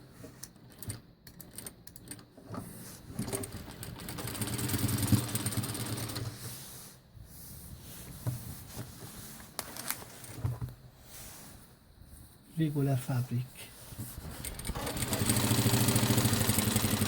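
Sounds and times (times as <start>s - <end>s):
sewing machine stitching: 3.1s - 6.4s, 14.4s - 17.0s
handling sounds with clicks: 9.4s - 10.8s.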